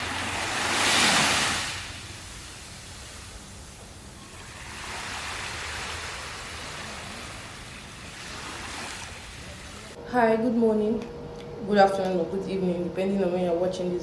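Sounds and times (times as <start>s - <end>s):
ocean surf washing ashore: 0.0s - 10.0s.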